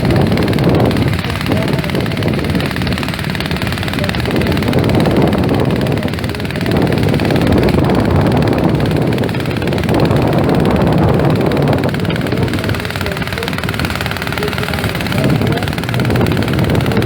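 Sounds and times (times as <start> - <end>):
lawn tractor engine running: 0.0 - 17.0.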